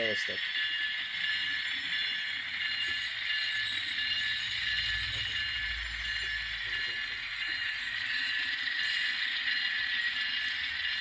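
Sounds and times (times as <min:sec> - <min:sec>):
model locomotive engine sound: 0:00.0 - 0:11.0
low rumble: 0:04.0 - 0:08.1.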